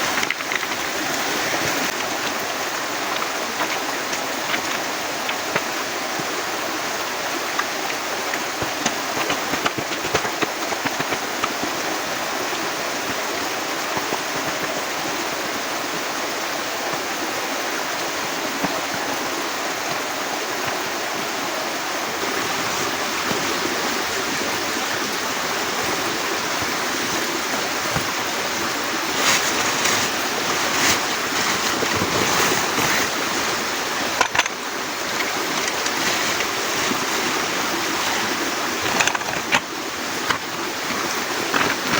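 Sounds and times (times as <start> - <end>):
sharp taps and knocks: 8.6 - 11.7.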